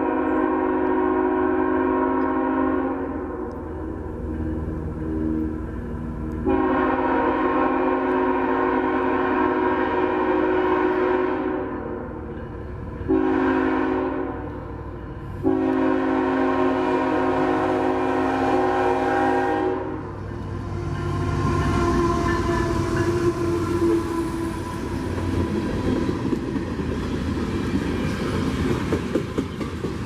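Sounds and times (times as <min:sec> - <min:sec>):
locomotive air horn blasts: 0:00.0 - 0:03.4, 0:06.4 - 0:12.1, 0:13.1 - 0:14.6, 0:15.4 - 0:25.1
train rumbling past: 0:00.0 - 0:30.0.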